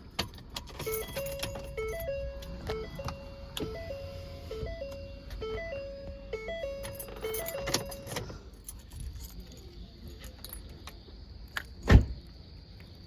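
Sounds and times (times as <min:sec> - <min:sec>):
keys jingling: 0:00.0 - 0:03.2, 0:06.7 - 0:11.0
car warning chime beeps: 0:00.8 - 0:08.3.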